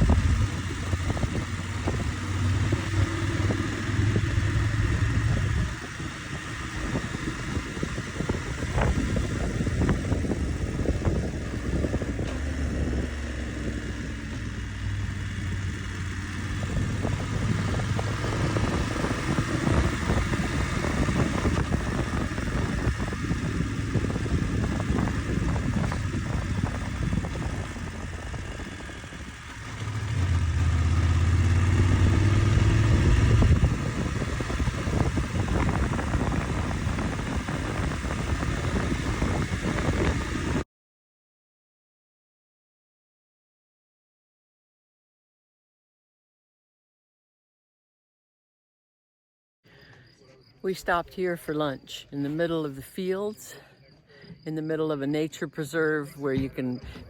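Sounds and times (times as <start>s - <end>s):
motorcycle engine running: 0.0s - 40.6s
wind rushing: 30.0s - 40.6s.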